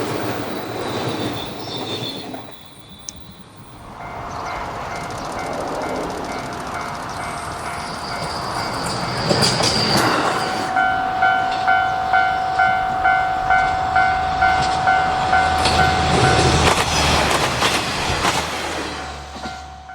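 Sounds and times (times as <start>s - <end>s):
train rumble: 0.0s - 19.9s
level-crossing alarm ringing: 0.2s - 16.7s
train wheels clicking over rails: 3.9s - 10.8s, 14.4s - 19.7s.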